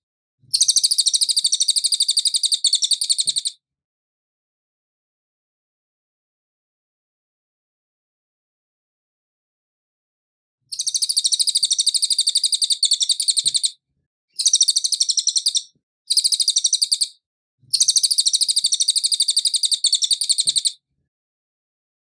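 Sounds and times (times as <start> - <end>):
bird singing high trills: 10.7 - 13.8, 14.4 - 17.2.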